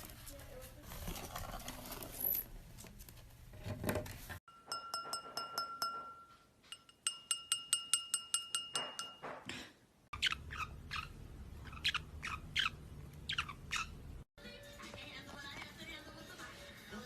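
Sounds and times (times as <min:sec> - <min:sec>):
light taps ringing clear tone: 0:04.5 - 0:09.4
parrot chirping: 0:10.1 - 0:14.2.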